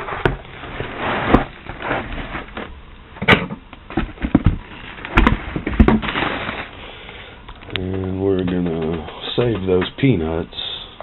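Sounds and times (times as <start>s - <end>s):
packing peanuts rustling: 6.0s - 7.0s.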